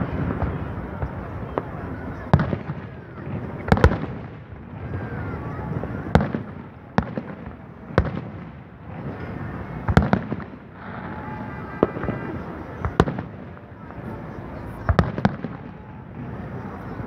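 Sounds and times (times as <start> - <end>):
continuous noise: 0.0 - 17.0
fireworks bursting in sharp bangs: 0.0 - 17.0.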